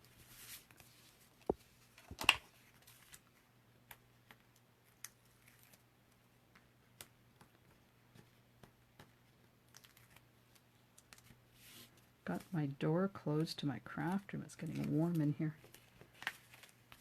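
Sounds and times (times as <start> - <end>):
low steady hum: 0.0 - 17.0
paper crackle: 0.1 - 3.5, 4.2 - 6.2, 9.2 - 12.6, 14.0 - 17.0.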